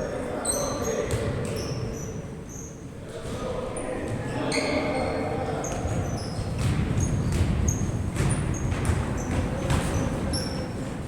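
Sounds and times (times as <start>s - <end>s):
murmur of voices: 0.0s - 7.0s
sneakers squeaking on court: 4.3s - 10.8s
basketball bouncing: 6.5s - 10.4s.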